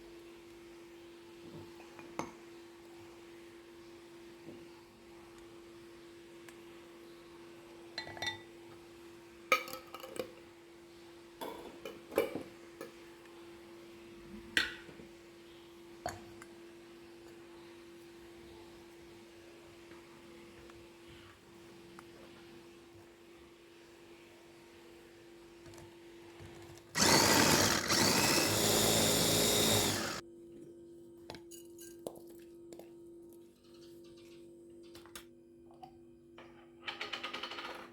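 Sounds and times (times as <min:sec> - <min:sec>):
blender motor whining: 0:27.0 - 0:30.2.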